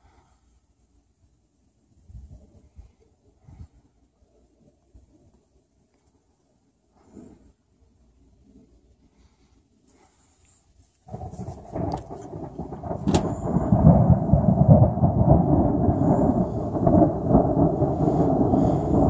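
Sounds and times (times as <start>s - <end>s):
storm rumbling: 11.1s - 19.0s.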